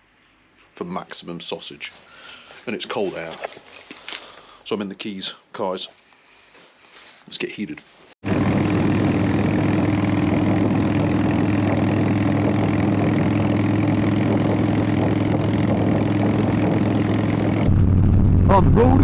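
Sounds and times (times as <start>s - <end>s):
motorcycle engine running: 8.3s - 19.0s.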